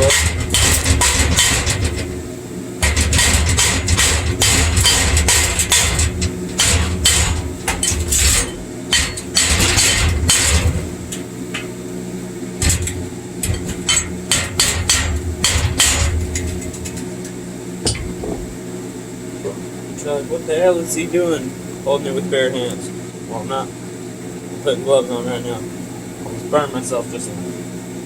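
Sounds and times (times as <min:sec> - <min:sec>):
chipping hammer tapping metal: 0:00.0 - 0:11.7, 0:12.6 - 0:18.5
steady low hum: 0:00.0 - 0:28.0.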